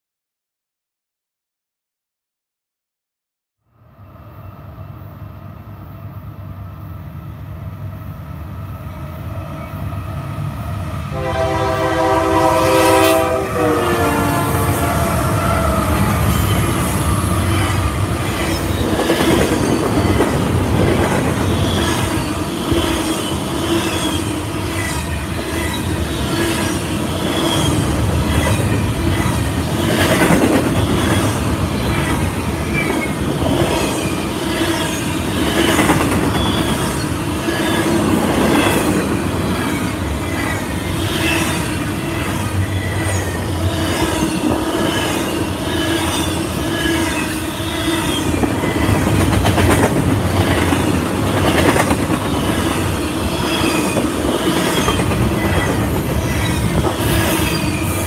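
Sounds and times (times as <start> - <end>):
freight train wheels rumbling: 4.2 - 58.0
train air horn: 11.1 - 16.2.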